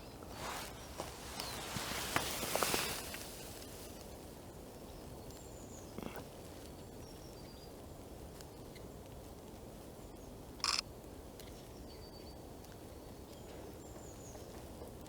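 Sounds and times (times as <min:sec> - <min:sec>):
rustling: 0:00.0 - 0:04.3
small birds chirping: 0:00.0 - 0:07.8.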